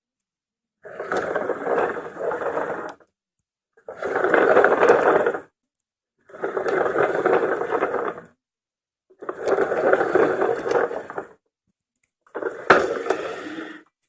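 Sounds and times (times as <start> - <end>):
toy car wheels whirring: 3.9 - 5.5, 6.3 - 8.3, 9.2 - 11.4, 12.3 - 13.9.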